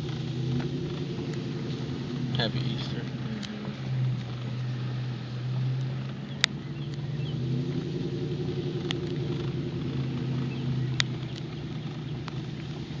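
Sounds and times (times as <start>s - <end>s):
car engine running: 0.0s - 13.0s
road noise: 0.0s - 13.0s
sharp clicks: 5.6s - 7.1s, 8.8s - 12.8s.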